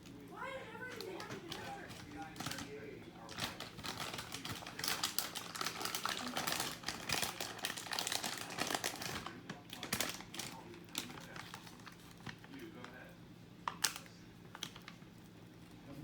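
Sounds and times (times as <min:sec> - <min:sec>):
ceiling fan clicking and rattling: 0:00.0 - 0:16.0.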